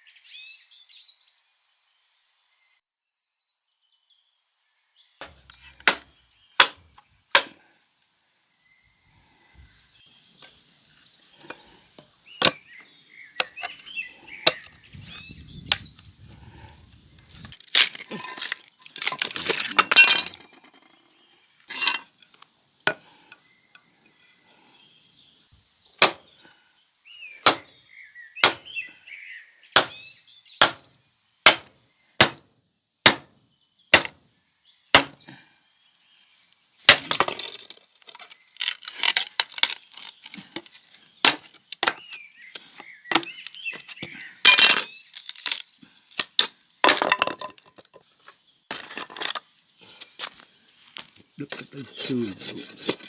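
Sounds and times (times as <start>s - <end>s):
clinking knocks: 17.7s - 20.9s, 43.1s - 45.6s.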